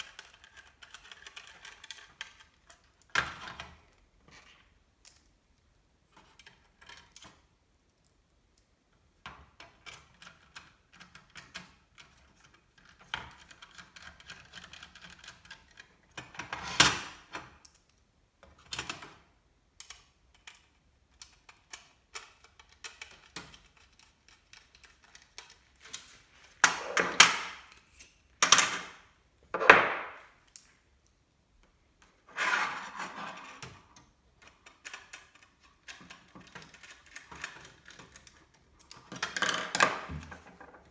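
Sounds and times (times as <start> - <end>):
rustling scrapes: 32.3 - 33.8.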